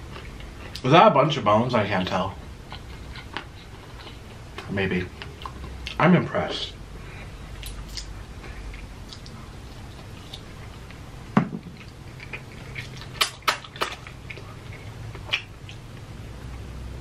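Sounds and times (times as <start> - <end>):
chewing fried chicken: 2.6 - 6.0, 7.6 - 11.1, 11.7 - 16.7.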